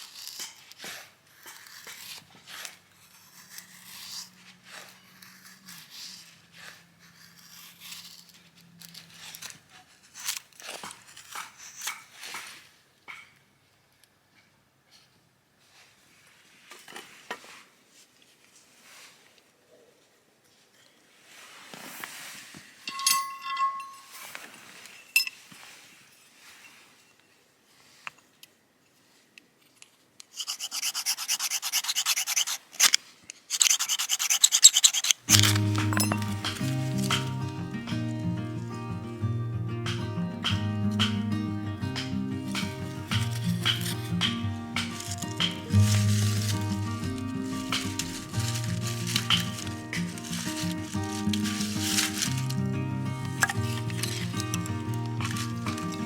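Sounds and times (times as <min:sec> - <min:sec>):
snipping and crinkling food preparation: 0:00.0 - 0:13.4, 0:29.7 - 0:38.2, 0:39.8 - 0:56.0
fast rhythmic scraping: 0:30.4 - 0:38.1, 0:41.9 - 0:56.0.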